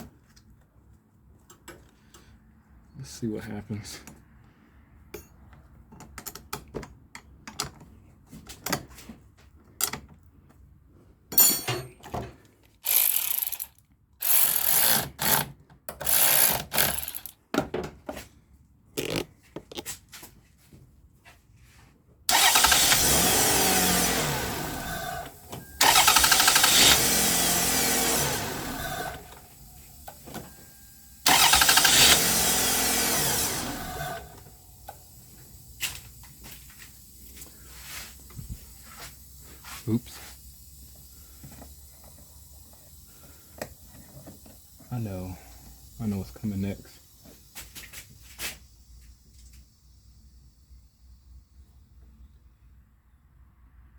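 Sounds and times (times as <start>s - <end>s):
starter cranking engine: 12.8s - 15.4s, 16.0s - 17.3s, 22.3s - 30.3s, 31.1s - 35.2s.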